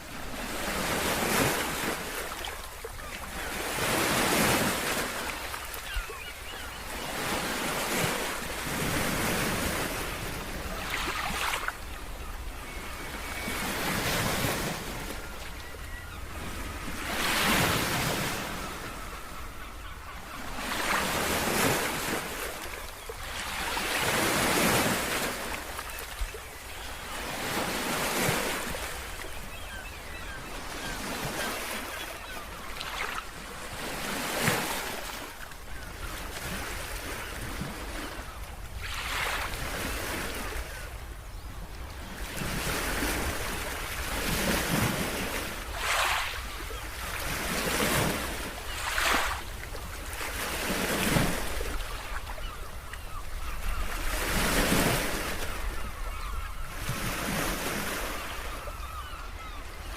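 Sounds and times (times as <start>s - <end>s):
waves breaking: 6.9s - 15.5s, 42.2s - 59.6s.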